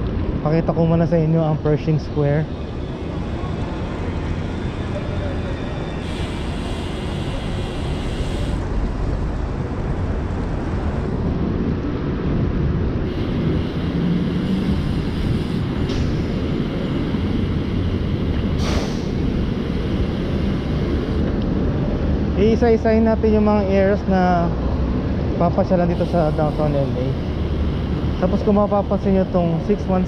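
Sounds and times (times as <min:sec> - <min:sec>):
wind and road rumble: 0:00.0 - 0:30.0
short hiss: 0:18.6 - 0:19.2.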